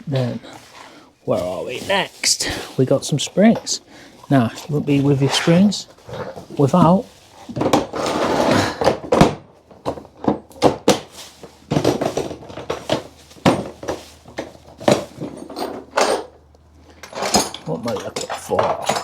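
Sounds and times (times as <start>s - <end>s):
rattling and rustling: 0.1s - 19.0s
metal tools clinking and knocking: 11.8s - 19.0s.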